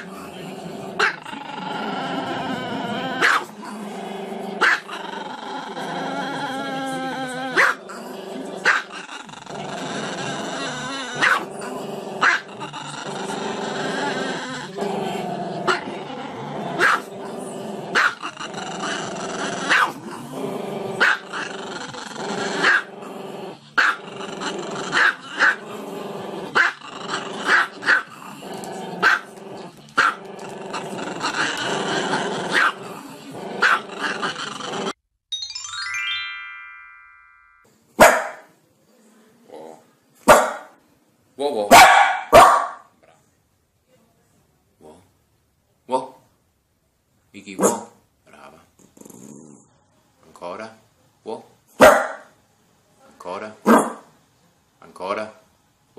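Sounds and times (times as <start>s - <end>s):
dog barking: 3.2s - 3.5s, 4.6s - 4.9s, 7.6s - 7.8s, 11.2s - 11.5s, 12.2s - 12.4s, 16.8s - 17.1s, 18.0s - 18.2s, 19.7s - 20.0s, 21.0s - 21.2s, 23.8s - 24.0s, 29.0s - 29.2s, 32.5s - 32.8s, 38.0s - 38.5s, 40.3s - 40.8s, 41.7s - 42.9s, 47.6s - 48.0s, 51.8s - 52.3s, 53.6s - 54.1s.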